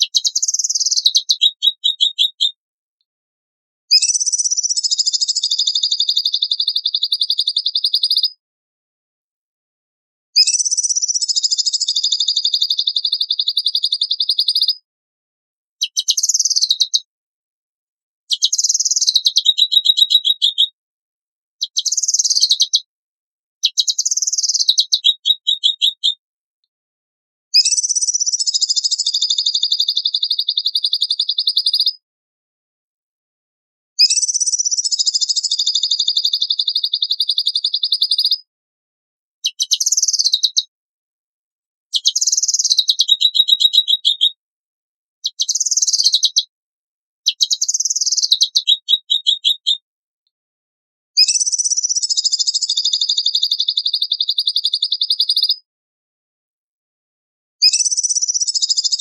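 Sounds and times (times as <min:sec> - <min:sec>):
songbird singing buzzy trills: 0:00.0 - 0:02.6, 0:03.9 - 0:08.4, 0:10.4 - 0:14.8, 0:15.8 - 0:17.1, 0:18.3 - 0:20.7, 0:21.6 - 0:22.9, 0:23.6 - 0:26.2, 0:27.6 - 0:32.0, 0:34.0 - 0:38.4, 0:39.4 - 0:40.7, 0:41.9 - 0:44.3, 0:45.2 - 0:46.5, 0:47.3 - 0:49.8, 0:51.2 - 0:55.6, 0:57.6 - 0:59.0.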